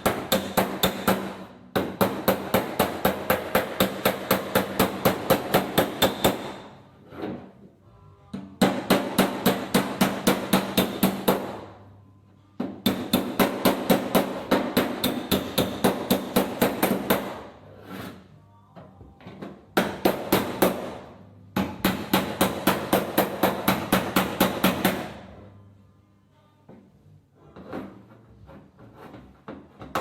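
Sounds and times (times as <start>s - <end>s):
hammer on steel panel: 0.0s - 6.8s, 8.4s - 11.8s, 12.6s - 17.6s, 19.8s - 25.2s.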